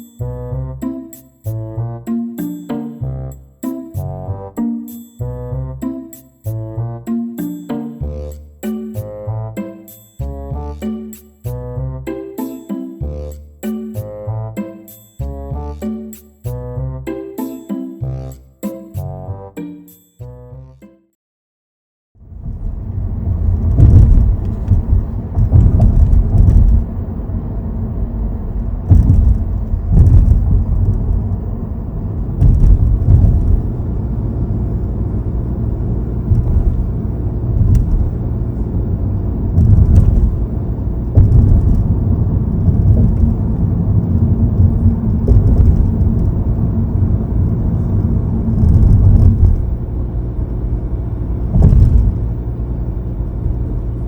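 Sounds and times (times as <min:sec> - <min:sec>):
car road rumble: 0:22.2 - 0:54.0.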